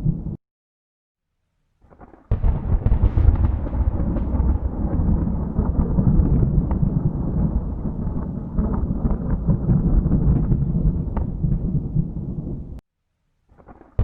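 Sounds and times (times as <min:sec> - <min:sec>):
thunder crack and rumble: 0:02.3 - 0:12.8.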